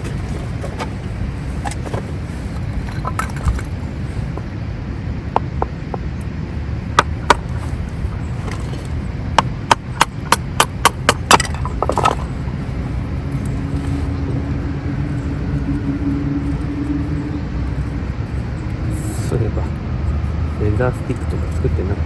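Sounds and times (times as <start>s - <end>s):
steady low hum: 0.0s - 22.0s
dry wood snapping: 7.0s - 12.3s.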